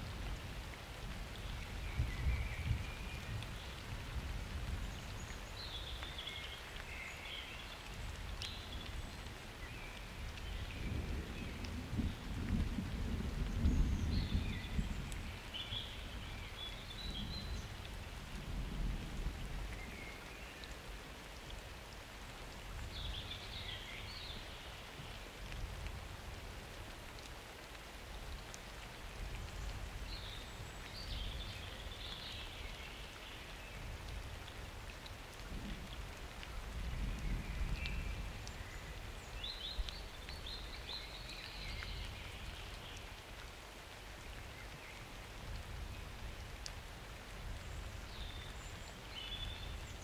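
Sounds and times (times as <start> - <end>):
steady rain falling: 0.0 - 50.0.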